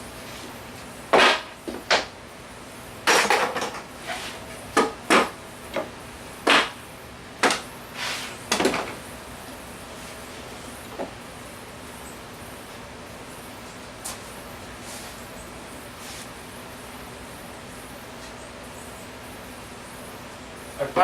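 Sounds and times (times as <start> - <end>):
objects knocking and clattering: 3.1 - 3.9.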